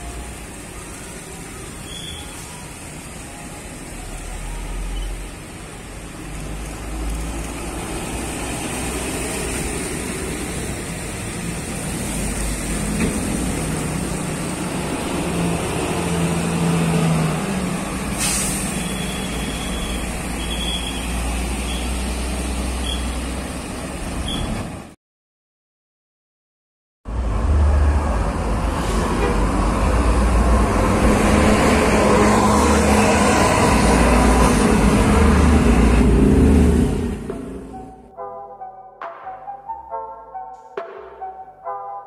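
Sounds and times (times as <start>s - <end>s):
diesel engine passing: 0.0s - 24.8s, 27.1s - 41.8s
hiss of released air: 18.1s - 19.0s.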